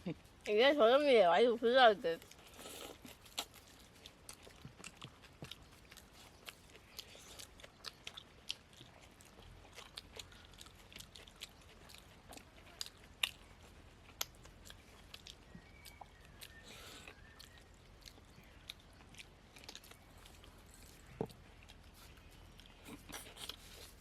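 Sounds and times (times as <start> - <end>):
people chewing food: 1.6 - 24.0.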